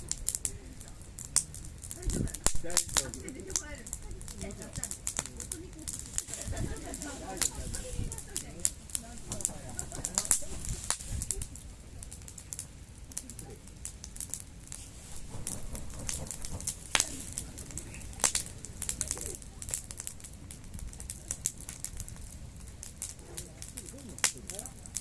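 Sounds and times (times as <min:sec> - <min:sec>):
campfire crackling: 0:00.0 - 0:25.0
fire popping and snapping: 0:00.0 - 0:25.0.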